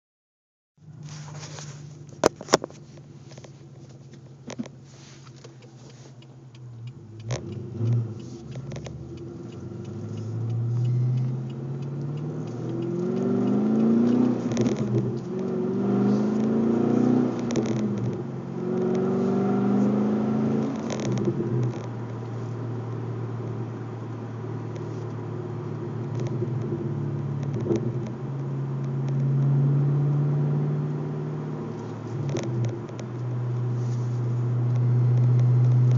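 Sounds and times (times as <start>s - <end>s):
car engine accelerating through gears: 3.4s - 35.9s
sharp clicks: 5.4s - 15.5s.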